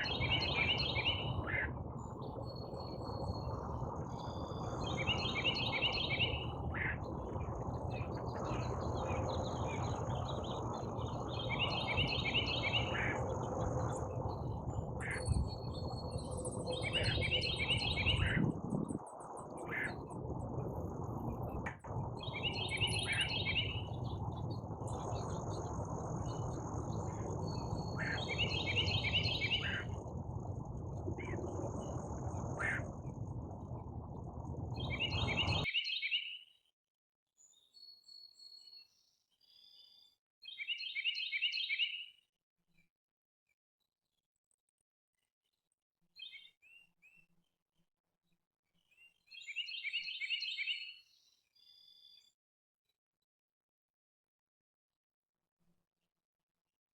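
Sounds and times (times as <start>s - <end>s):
constant low rumble: 0.0s - 35.7s.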